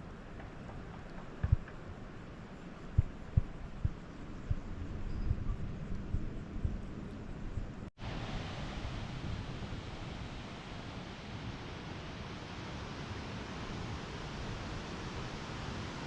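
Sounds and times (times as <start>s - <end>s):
flowing water rushing: 8.0s - 16.0s.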